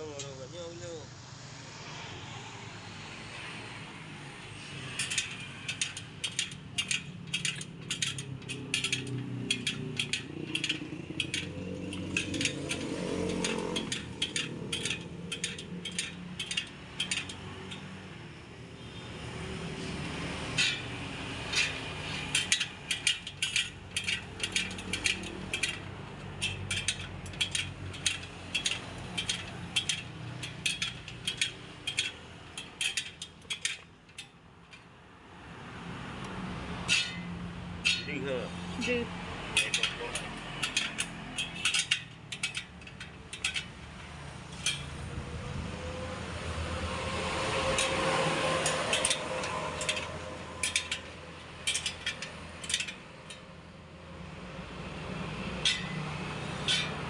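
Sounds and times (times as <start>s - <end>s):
rapid metallic clicking: 4.7s - 18.2s, 20.5s - 35.0s, 36.8s - 45.3s, 47.0s - 53.7s, 55.6s - 57.0s.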